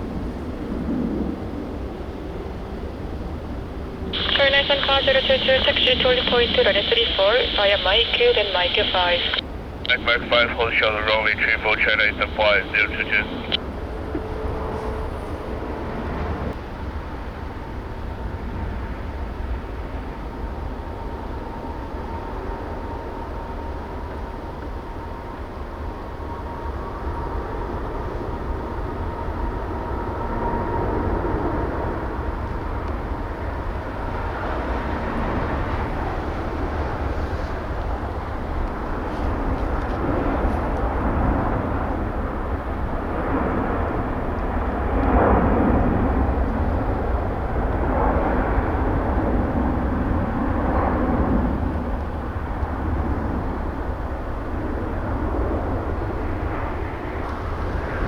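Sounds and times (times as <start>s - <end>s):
jet engine roar: 0.0s - 58.0s
jet engine whine: 0.0s - 58.0s
wind rumble on microphone: 13.0s - 58.0s.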